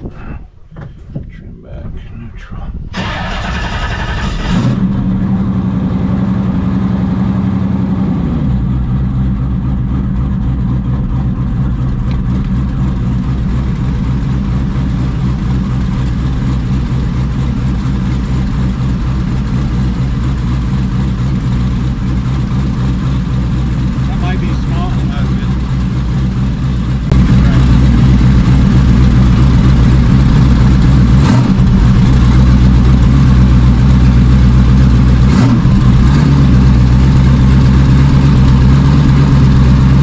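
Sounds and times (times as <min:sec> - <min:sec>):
engine starter cranking: 0:02.9 - 0:04.9
boat engine idling: 0:08.6 - 0:40.0.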